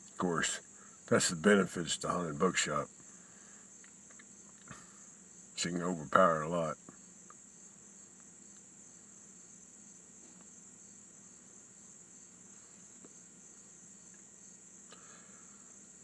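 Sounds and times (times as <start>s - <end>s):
crickets chirring: 0.0s - 16.0s
faint clicks: 3.8s - 4.9s.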